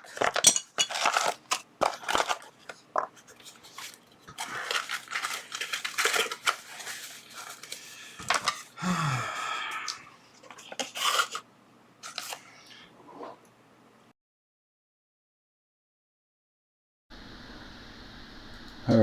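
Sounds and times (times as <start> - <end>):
plastic packaging rustling and tearing: 0.0 - 8.8, 10.4 - 11.4, 12.0 - 12.5.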